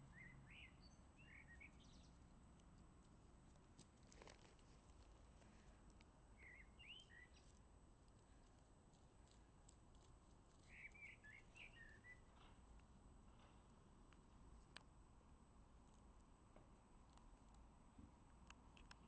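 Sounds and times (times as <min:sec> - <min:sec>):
faint bird twittering: 0:00.0 - 0:02.3, 0:06.4 - 0:07.6, 0:10.6 - 0:12.6
faint ticks: 0:18.3 - 0:19.0.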